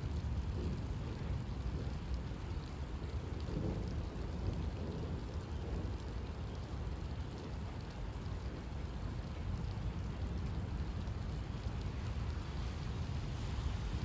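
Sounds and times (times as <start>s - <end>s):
low rumble of thunder: 0.0s - 8.8s
heavy rain falling: 9.9s - 14.0s.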